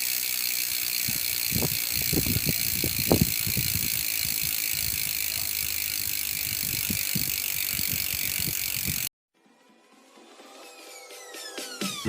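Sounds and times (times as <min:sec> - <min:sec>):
bicycle hub ratchet buzz: 0:00.0 - 0:09.1.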